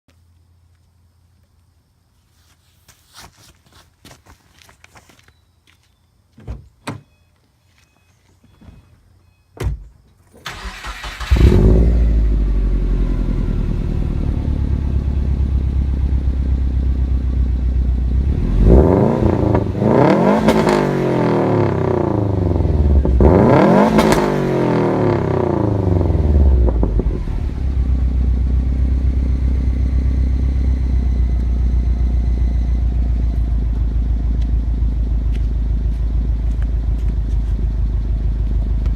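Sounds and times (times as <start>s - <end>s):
car engine starting and idling: 10.4s - 38.9s
car engine revving: 10.5s - 16.4s, 17.9s - 34.0s.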